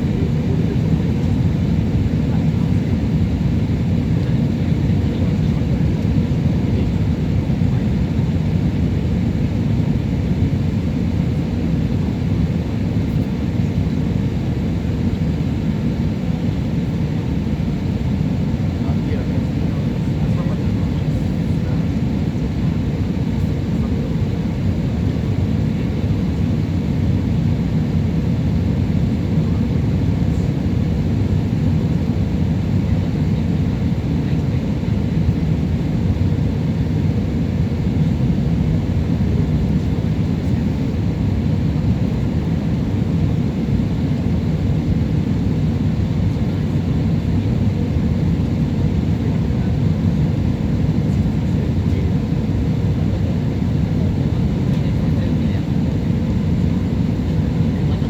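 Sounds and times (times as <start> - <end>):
airplane cabin engine roar: 0.0 - 58.0.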